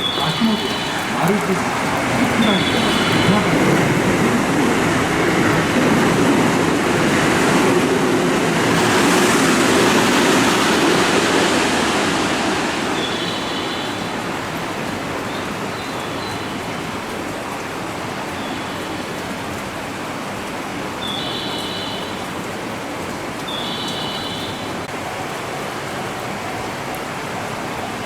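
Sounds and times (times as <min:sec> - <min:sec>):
electric train rumbling: 0:00.0 - 0:14.6.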